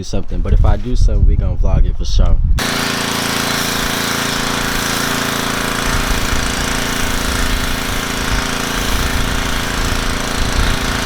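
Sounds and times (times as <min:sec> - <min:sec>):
hissing water spray: 0:02.6 - 0:11.0
pressure washer motor hum: 0:02.6 - 0:11.0.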